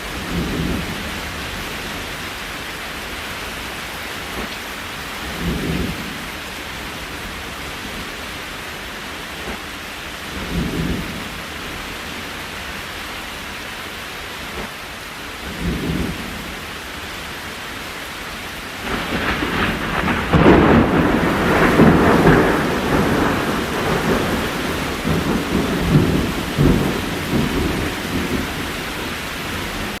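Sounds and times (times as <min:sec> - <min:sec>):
thunder rumbling: 0:00.0 - 0:02.1, 0:05.2 - 0:08.2, 0:10.2 - 0:11.8, 0:15.4 - 0:16.8, 0:18.8 - 0:30.0
steady rain: 0:00.0 - 0:30.0.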